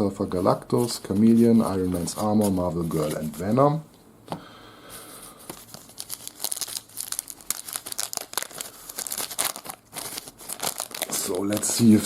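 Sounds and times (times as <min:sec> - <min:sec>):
wrapper tearing and crinkling: 0:05.6 - 0:12.0.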